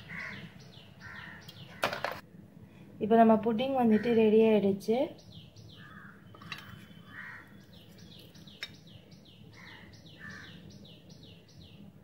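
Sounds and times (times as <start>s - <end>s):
bird chirping: 0.0s - 2.1s, 5.2s - 11.9s
harsh bird calls: 0.0s - 2.2s, 5.2s - 11.8s.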